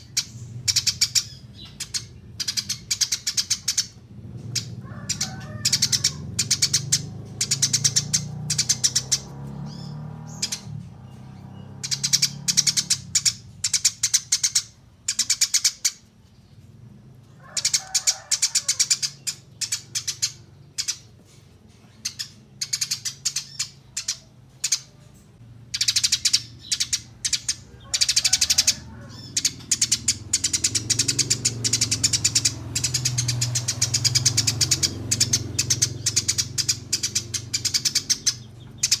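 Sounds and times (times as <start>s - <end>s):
sparrows chirping: 0.0s - 39.0s.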